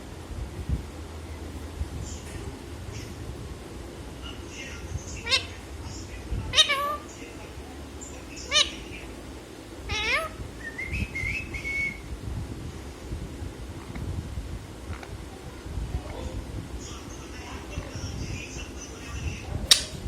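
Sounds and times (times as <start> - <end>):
parrot meowing: 5.2 - 5.6, 6.5 - 7.1, 8.4 - 8.9, 9.9 - 10.4.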